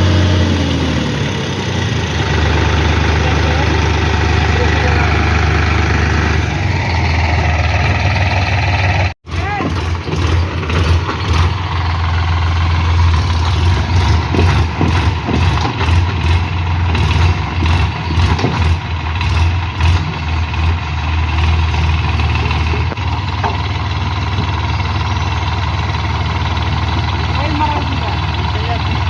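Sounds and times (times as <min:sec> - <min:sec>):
engine knocking clatter: 0:00.0 - 0:06.4, 0:07.1 - 0:29.0
diesel engine running: 0:00.0 - 0:29.0.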